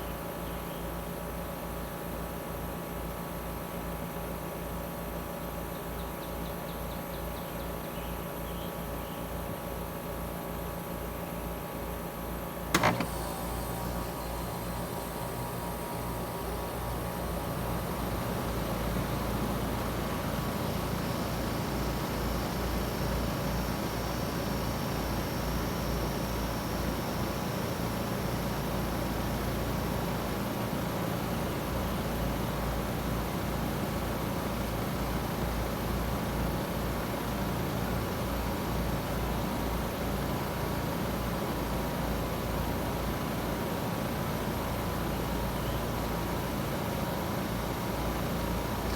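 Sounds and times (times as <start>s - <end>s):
compressor hum: 12.4s - 35.0s
condenser fan rushing: 12.4s - 48.9s.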